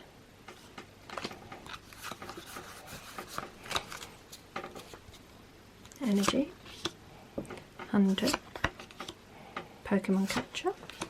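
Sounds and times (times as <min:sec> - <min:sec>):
cards clicking and rustling: 0:00.5 - 0:05.3, 0:05.9 - 0:07.0, 0:07.9 - 0:09.2, 0:10.2 - 0:11.0.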